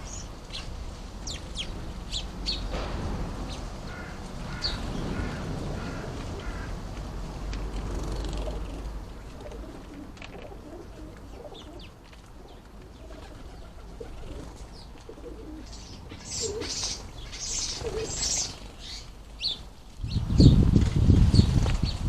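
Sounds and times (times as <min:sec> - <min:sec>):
birds chirping: 0:00.0 - 0:02.8, 0:03.4 - 0:06.8, 0:07.8 - 0:20.7
pigeon cooing: 0:07.9 - 0:18.6.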